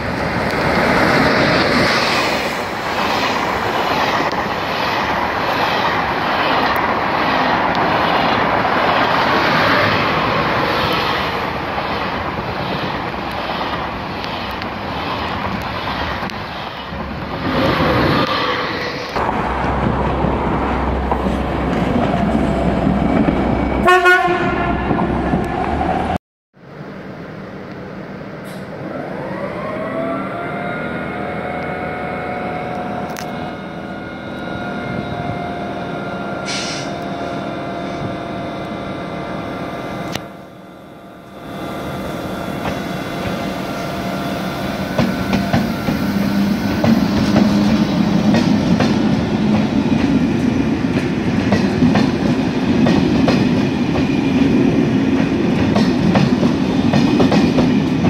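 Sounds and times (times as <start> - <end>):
train wheels clicking and rumbling: 0.0 - 26.2, 42.5 - 58.0
electric locomotive whine: 0.0 - 58.0.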